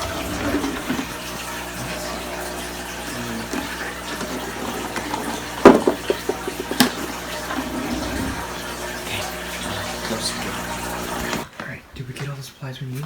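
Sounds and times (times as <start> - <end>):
running water: 0.0 - 11.5
knock: 5.6 - 6.8.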